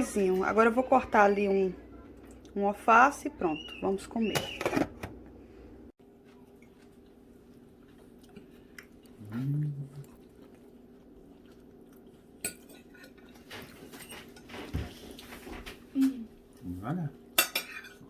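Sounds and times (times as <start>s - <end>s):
dishes and cutlery clinking: 12.4s - 15.2s, 17.4s - 18.0s.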